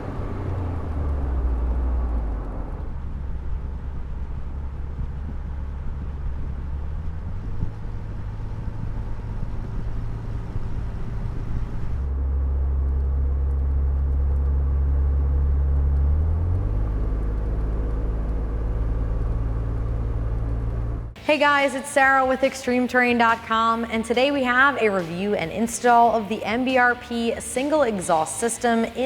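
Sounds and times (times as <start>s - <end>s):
truck exhaust low note: 0.0s - 21.6s.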